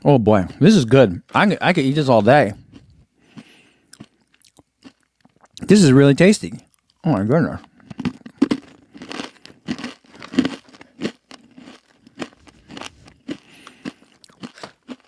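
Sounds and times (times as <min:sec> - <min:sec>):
chewing crunchy granola: 0:01.7 - 0:05.7, 0:06.6 - 0:15.0
crinkly packet rustling: 0:07.8 - 0:15.0.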